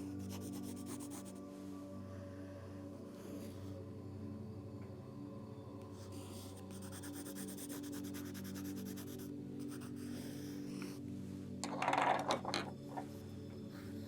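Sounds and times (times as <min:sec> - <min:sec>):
pencil scratching on paper: 0:00.0 - 0:01.4, 0:06.0 - 0:11.0.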